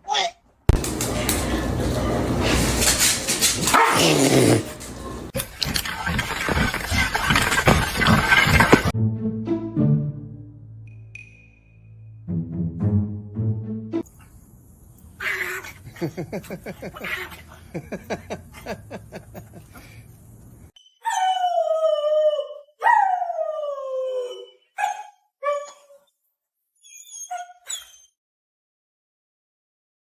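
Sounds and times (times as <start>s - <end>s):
dog howling and yelping: 21.0s - 26.0s.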